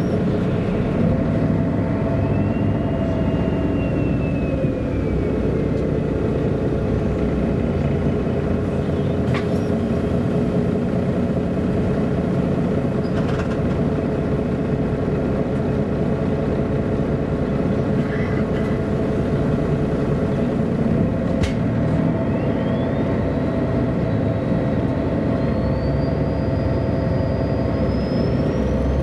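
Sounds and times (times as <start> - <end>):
bus engine drone with whine: 0.0 - 29.0.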